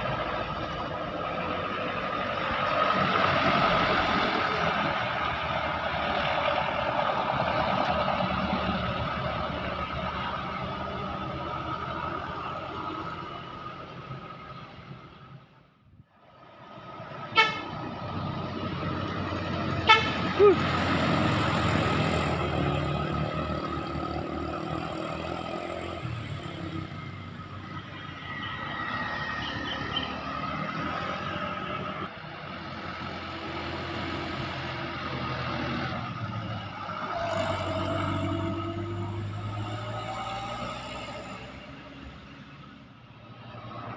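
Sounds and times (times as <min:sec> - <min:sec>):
truck engine and road noise: 0:00.0 - 0:43.9
short horn toot: 0:17.4 - 0:17.7, 0:19.9 - 0:20.6.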